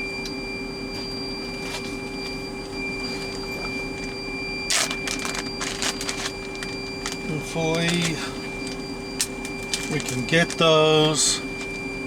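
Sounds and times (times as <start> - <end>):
electrical hum: 0.0 - 12.0
plastic packaging crinkling: 4.7 - 10.7.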